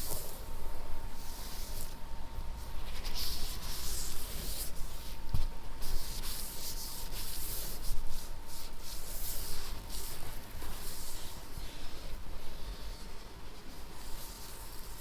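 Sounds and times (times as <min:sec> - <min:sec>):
soft scratchy rubbing strokes: 0:05.8 - 0:15.0.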